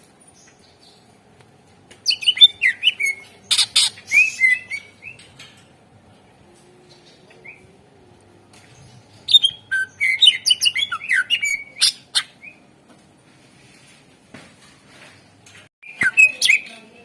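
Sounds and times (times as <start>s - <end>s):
bird singing chirps and whistles: 2.0s - 5.3s, 9.3s - 12.6s, 15.8s - 16.8s.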